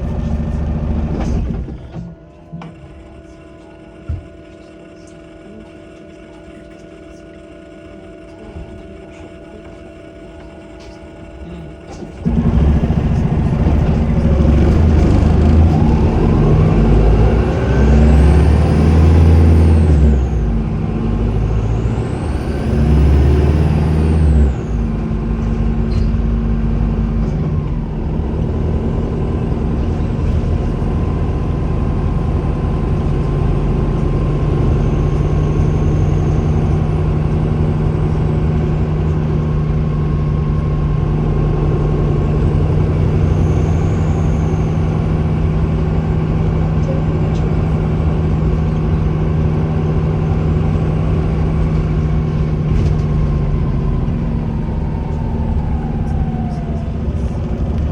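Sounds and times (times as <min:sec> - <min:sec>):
bus diesel engine accelerating: 0:00.0 - 0:57.9
turbocharger whistle: 0:30.8 - 0:46.3.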